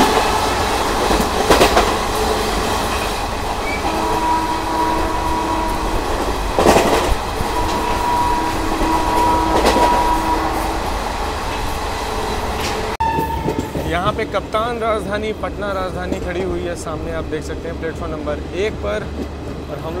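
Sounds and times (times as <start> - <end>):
passing train: 0.0 - 20.0
train wheel-and-rail rumble: 0.0 - 20.0
wheels clanking over rail joints: 0.0 - 20.0
faint whistle of wheels on rail: 3.6 - 6.0, 7.4 - 10.8, 13.0 - 13.8.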